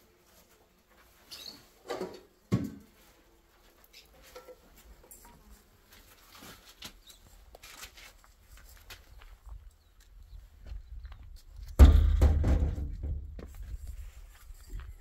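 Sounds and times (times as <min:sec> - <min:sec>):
sharp knock: 0:11.8 - 0:13.2.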